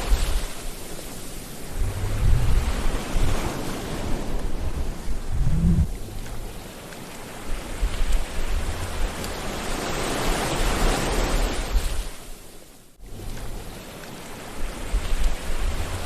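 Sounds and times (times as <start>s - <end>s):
sea waves washing onto shore: 0.0s - 16.0s
low rumble: 1.6s - 6.6s.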